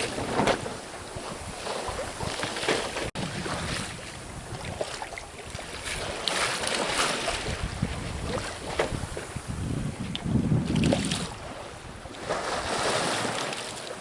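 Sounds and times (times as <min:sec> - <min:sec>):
wind buffeting microphone: 0:00.0 - 0:13.4
water splashing along hull: 0:00.0 - 0:14.0.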